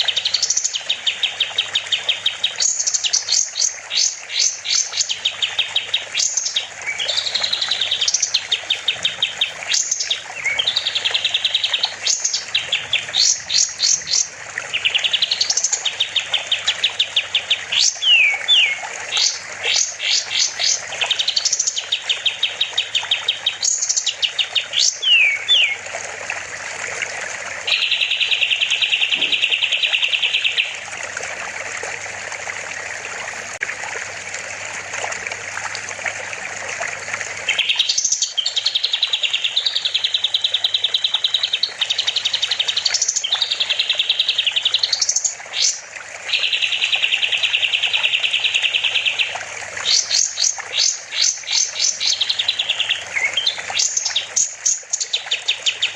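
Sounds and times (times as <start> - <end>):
songbird singing rapid trills: 0.0 - 25.8, 27.7 - 30.8, 37.5 - 55.9
rushing water: 0.0 - 55.9.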